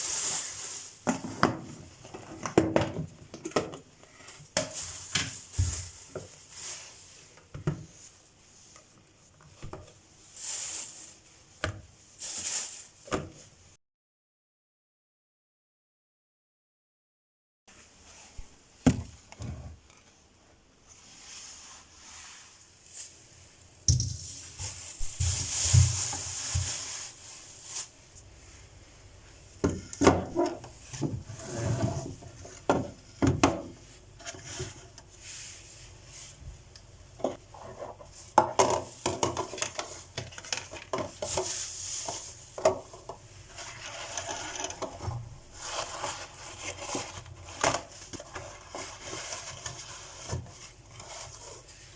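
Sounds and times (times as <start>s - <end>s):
rustling and rubbing: 20.9s - 29.1s, 43.4s - 51.9s.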